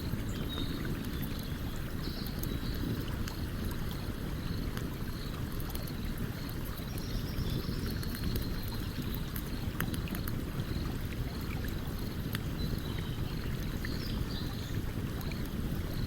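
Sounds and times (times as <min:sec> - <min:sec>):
campfire crackling and popping: 0:07.8 - 0:16.0.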